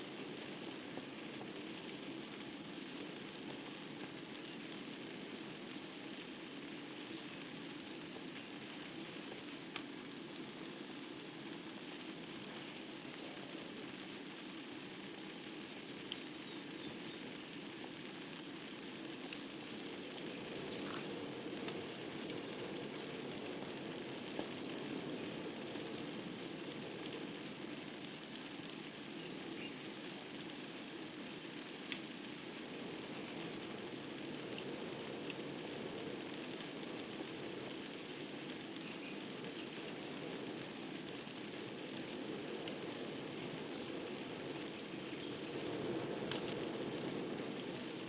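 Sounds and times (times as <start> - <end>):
fire crackles and pops: 0.0 - 48.0
wood fire burning: 0.0 - 48.0.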